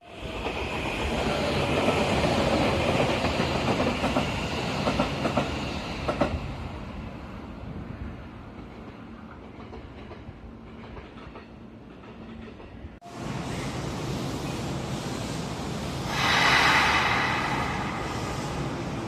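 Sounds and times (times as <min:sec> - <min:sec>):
train running on rails: 0:00.0 - 0:19.0.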